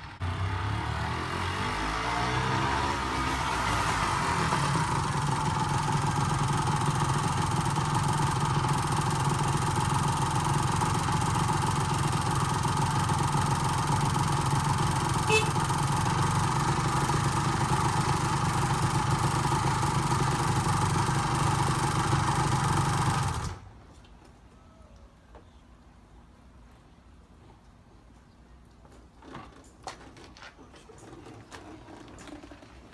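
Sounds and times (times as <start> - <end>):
motorcycle engine idling: 3.7 - 23.7.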